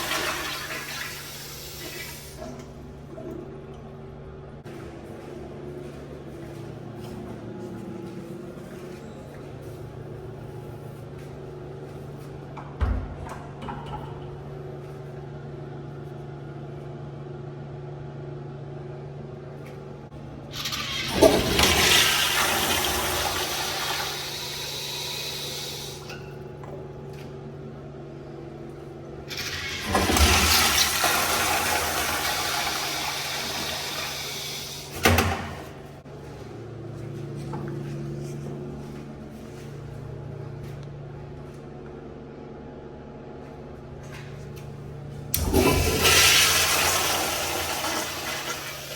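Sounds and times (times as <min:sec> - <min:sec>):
toilet flushing: 0:00.0 - 0:04.0, 0:20.4 - 0:26.8, 0:29.2 - 0:35.9, 0:45.3 - 0:48.9.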